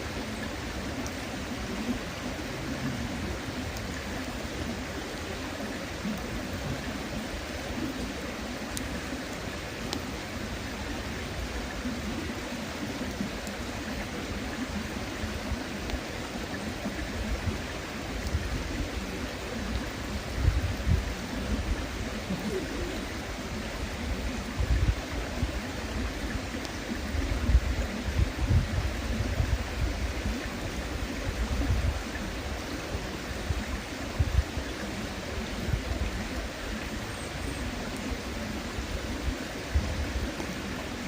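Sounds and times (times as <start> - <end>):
river water flowing: 0.0 - 41.0
faint clicks: 3.7 - 4.1, 8.7 - 10.1, 12.9 - 14.0, 18.2 - 18.4, 39.8 - 40.8.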